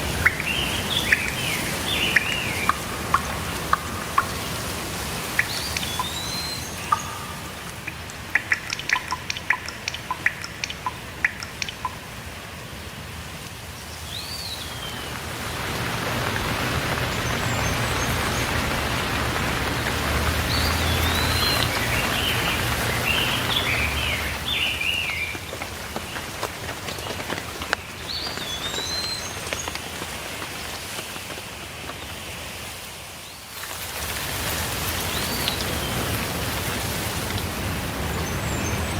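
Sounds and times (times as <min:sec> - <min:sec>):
birds chirping: 0:00.0 - 0:12.1, 0:14.0 - 0:29.9
rain falling: 0:00.0 - 0:38.9.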